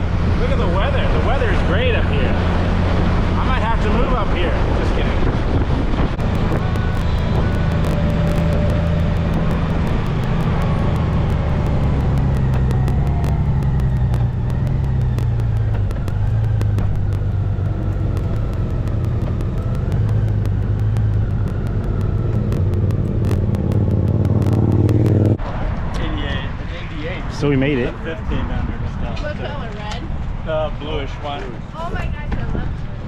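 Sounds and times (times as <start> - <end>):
motorcycle engine running: 6.0 - 25.4.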